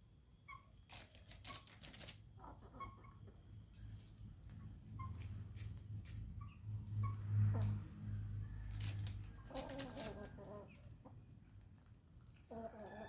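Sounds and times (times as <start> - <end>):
chicken clucking: 2.4 - 5.3, 8.6 - 13.0.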